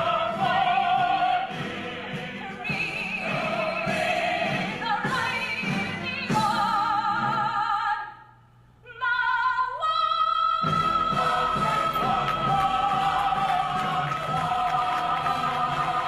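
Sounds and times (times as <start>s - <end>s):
woman singing operatically: 0.0s - 8.2s, 8.9s - 16.0s.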